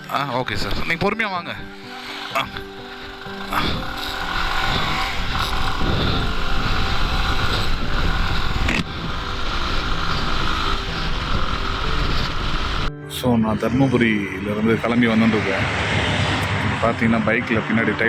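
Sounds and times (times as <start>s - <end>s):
wind and road noise: 0.0s - 18.0s
motorcycle engine rumble: 1.7s - 12.9s.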